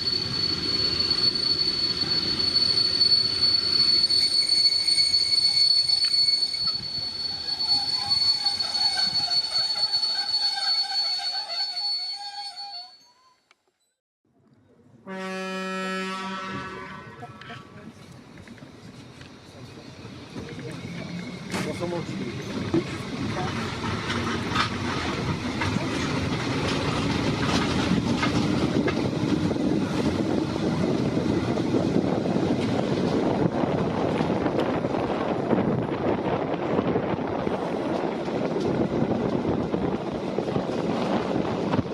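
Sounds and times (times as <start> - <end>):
moving train rumble: 0.0 - 13.5, 14.8 - 41.9
train wheels squealing: 0.0 - 14.0, 19.4 - 33.2.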